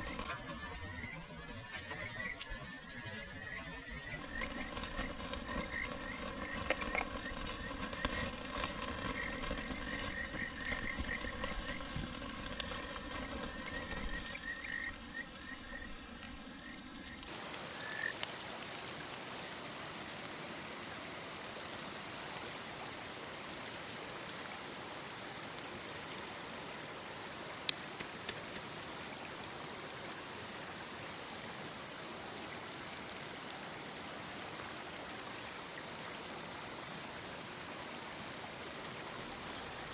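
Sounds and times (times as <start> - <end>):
stream babbling: 2.0 - 39.9
frogs chirping: 13.4 - 18.6.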